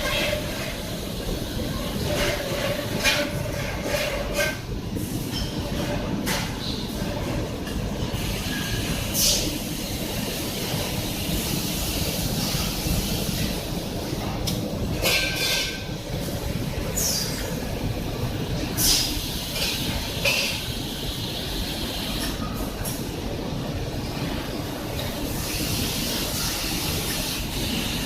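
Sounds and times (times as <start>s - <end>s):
factory machinery rumbling: 0.0s - 28.0s.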